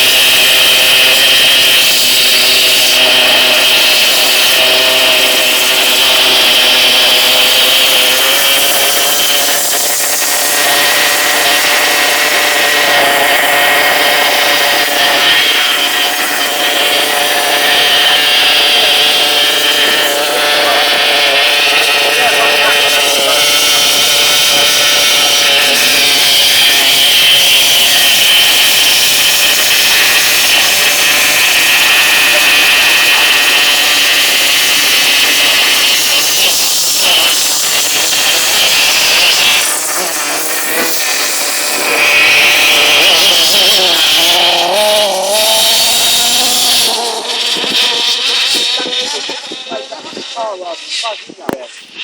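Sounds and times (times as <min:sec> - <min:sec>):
toy truck motor whining: 0:00.0 - 0:52.0.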